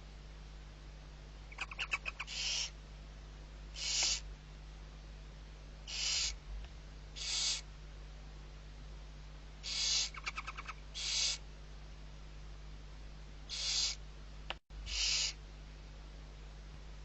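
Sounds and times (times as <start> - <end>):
steady low hum: 0.0 - 17.0
owl chick hissing begging calls: 1.5 - 2.8, 3.7 - 4.3, 5.8 - 6.4, 7.2 - 7.7, 9.6 - 11.4, 13.5 - 14.0, 14.8 - 15.4.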